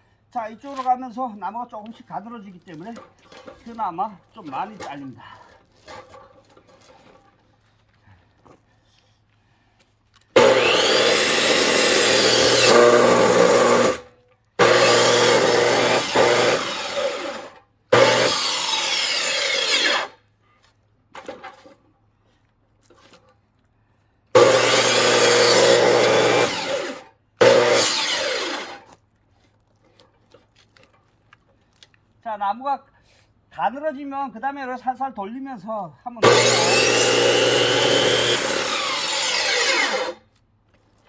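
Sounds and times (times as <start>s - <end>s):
chainsaw cutting log: 10.3s - 20.2s, 24.3s - 28.9s, 36.2s - 40.3s.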